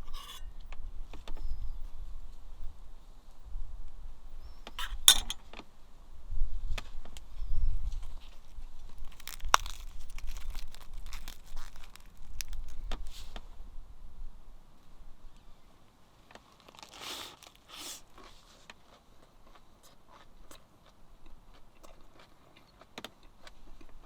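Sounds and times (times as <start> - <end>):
cookware clinking and scraping: 0.0 - 0.5, 4.8 - 5.4.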